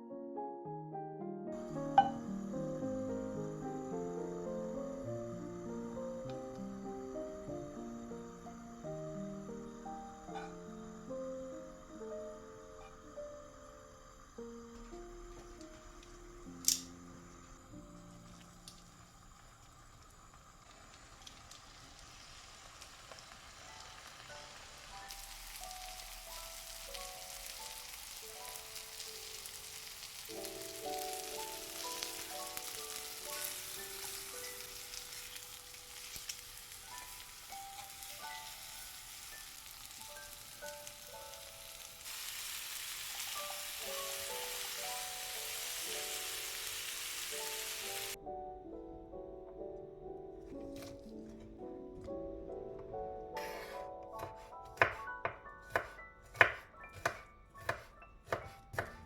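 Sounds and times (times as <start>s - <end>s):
light background melody: 0.0s - 19.4s, 23.6s - 59.0s
food sizzling in a frying pan: 11.6s - 48.2s.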